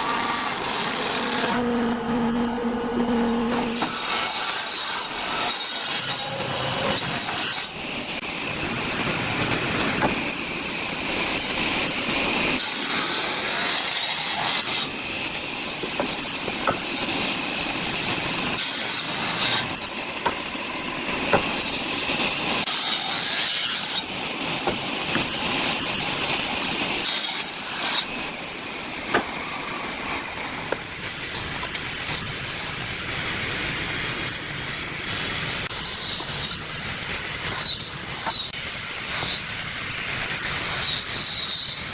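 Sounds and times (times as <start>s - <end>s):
power tool cutting wood: 0.0s - 8.2s, 12.5s - 32.8s, 35.6s - 41.9s.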